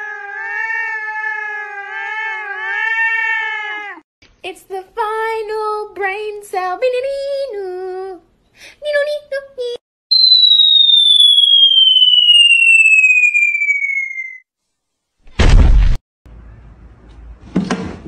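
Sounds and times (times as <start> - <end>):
cartoon falling whistle: 10.1 - 14.4.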